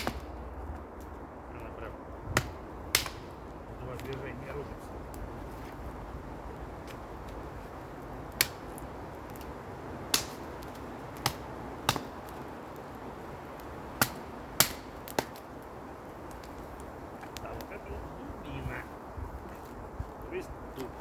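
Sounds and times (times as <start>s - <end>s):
machete chopping firewood: 0.0s - 0.4s, 2.3s - 3.4s, 8.3s - 12.5s, 14.0s - 15.4s.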